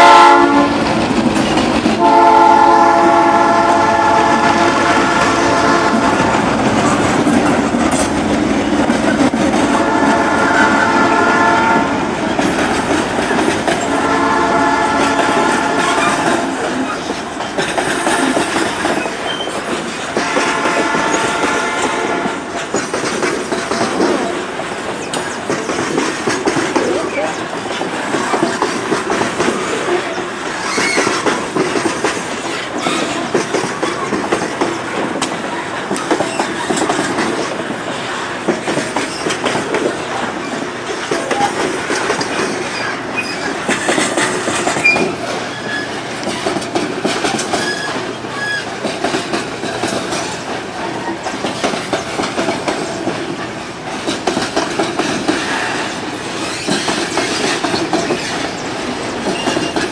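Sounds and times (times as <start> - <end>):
wheels clattering over rail joints: 0.0 - 4.2, 4.8 - 59.9
high wheel squeals: 19.0 - 19.6, 30.0 - 31.2, 42.6 - 43.6, 44.8 - 46.0, 47.6 - 48.7.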